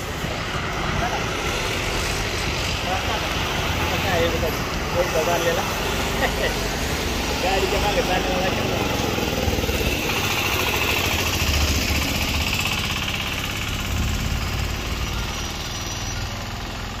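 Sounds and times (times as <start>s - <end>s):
motorcycle engine low rumble: 7.4s - 17.0s.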